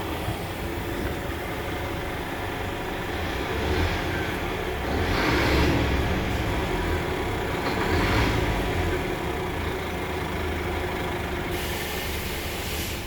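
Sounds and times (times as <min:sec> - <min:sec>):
diesel truck engine running: 0:00.0 - 0:13.0
hiss: 0:11.5 - 0:13.0.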